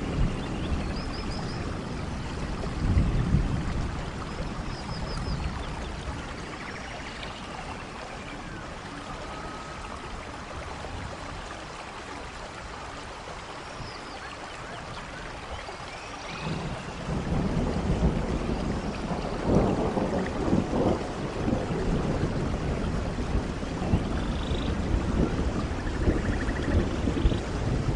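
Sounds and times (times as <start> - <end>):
thunder rumbling and cracking: 0.0 - 4.6, 16.4 - 27.9
steady rain: 0.0 - 27.9.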